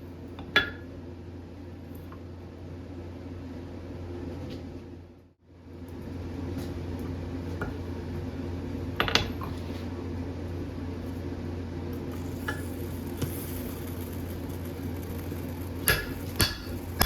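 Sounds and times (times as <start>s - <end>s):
machine hum: 9.9s - 17.0s.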